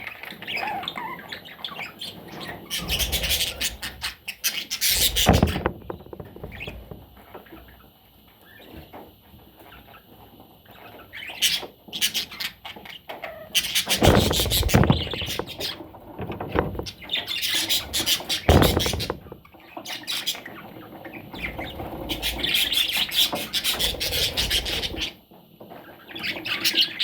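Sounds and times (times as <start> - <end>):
low thumps: 5.0 - 7.2, 14.0 - 17.1, 18.5 - 19.5.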